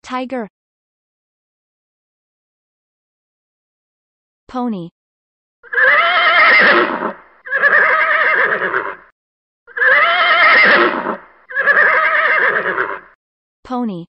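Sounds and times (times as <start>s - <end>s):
pony whinnying: 5.6s - 9.1s, 9.7s - 13.2s.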